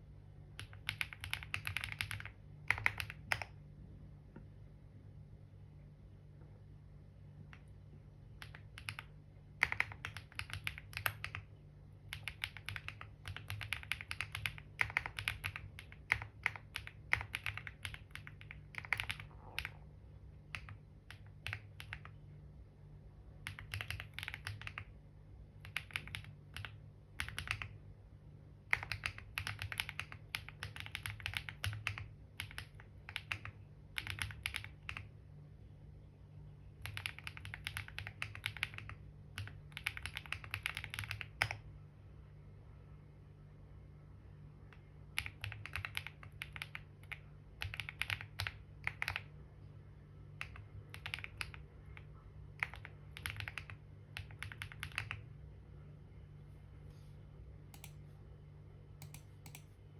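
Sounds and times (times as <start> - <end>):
steady low hum: 0.0 - 59.9
computer keyboard typing: 0.5 - 3.6, 8.3 - 22.2, 23.4 - 25.0, 25.6 - 27.8, 28.6 - 35.1, 36.8 - 41.7, 44.8 - 49.4, 50.3 - 55.3, 57.7 - 58.0, 59.0 - 59.7.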